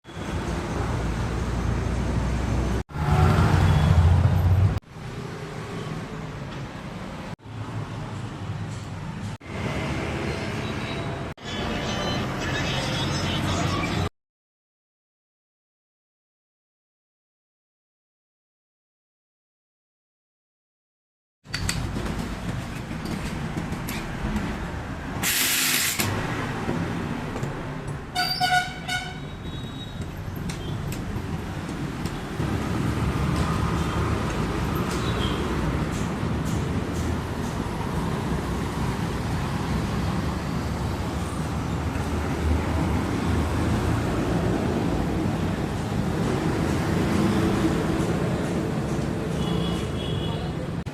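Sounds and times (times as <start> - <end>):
traffic noise: 0.0 - 14.1, 21.4 - 50.9
loud hiss burst: 25.2 - 26.1
vehicle horn honking: 28.2 - 30.0, 49.4 - 50.6.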